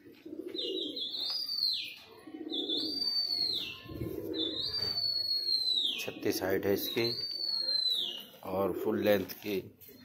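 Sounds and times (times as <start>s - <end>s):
pigeons cooing: 0.0s - 9.1s
high whistled call: 2.8s - 3.8s, 4.4s - 6.1s, 6.8s - 8.3s.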